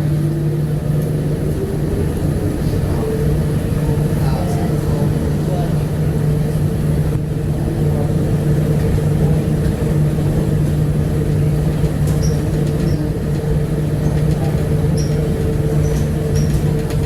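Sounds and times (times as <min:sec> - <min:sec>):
train hum and rumble: 0:00.0 - 0:17.0.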